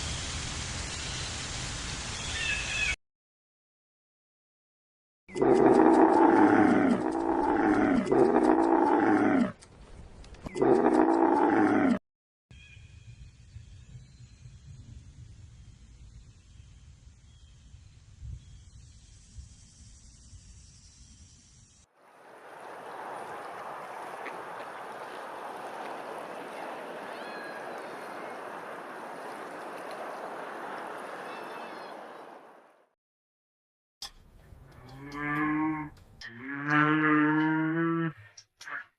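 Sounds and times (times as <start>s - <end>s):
big cat roaring: 5.3s - 9.6s, 10.5s - 12.0s
faint chirping call: 22.5s - 32.4s.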